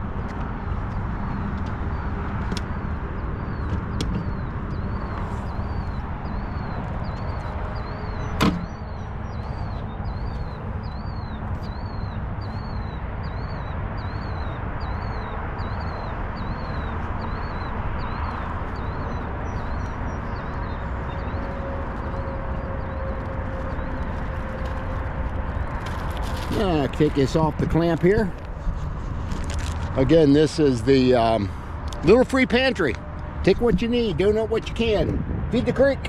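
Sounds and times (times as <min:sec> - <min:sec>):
bird chirping: 0:00.0 - 0:28.8
distant noise: 0:00.0 - 0:34.8
wind rumble: 0:00.0 - 0:36.0.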